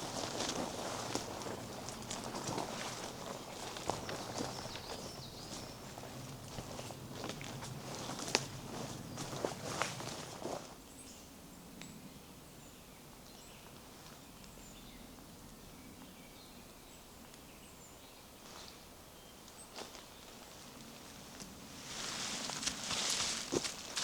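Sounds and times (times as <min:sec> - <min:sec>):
footsteps on forest path: 0:00.0 - 0:10.8, 0:19.5 - 0:24.0
birds chirping: 0:00.0 - 0:12.0.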